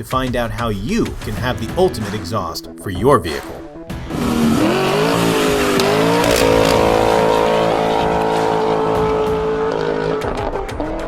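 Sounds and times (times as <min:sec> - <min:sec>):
car engine revving: 0:03.8 - 0:11.0.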